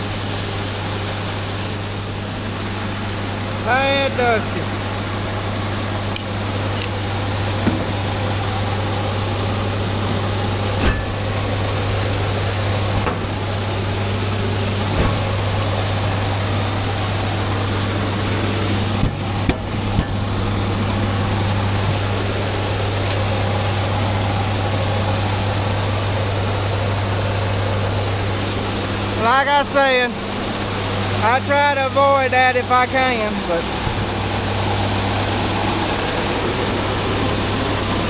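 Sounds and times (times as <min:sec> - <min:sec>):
vehicle engine humming: 0:00.0 - 0:38.0
knocks and rattles: 0:10.0 - 0:11.8, 0:12.8 - 0:22.3.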